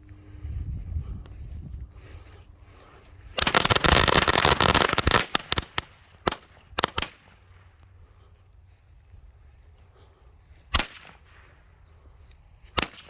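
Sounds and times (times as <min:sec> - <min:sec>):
fire: 0:02.0 - 0:13.0
firecrackers banging: 0:03.4 - 0:07.1.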